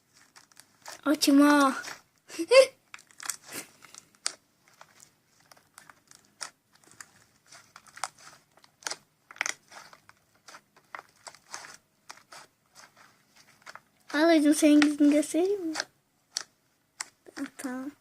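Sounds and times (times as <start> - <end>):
slime crackling and clicking: 4.2 - 12.9, 13.6 - 17.7.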